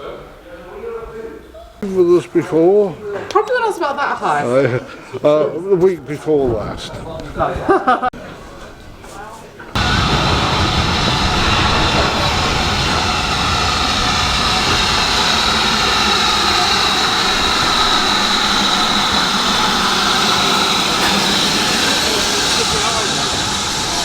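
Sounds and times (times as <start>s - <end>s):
steam locomotive venting steam: 9.8s - 24.0s.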